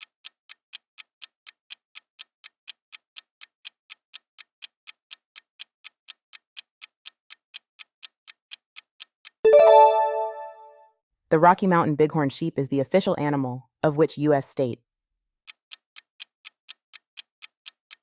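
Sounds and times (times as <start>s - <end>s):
clock ticking: 0.0s - 10.5s, 15.5s - 18.0s.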